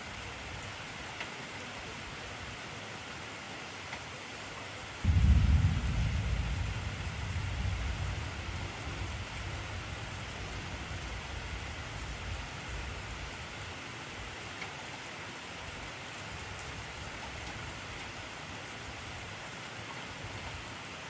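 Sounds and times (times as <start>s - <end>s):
heavy rain: 0.0s - 21.0s
low rumble of thunder: 5.0s - 13.7s.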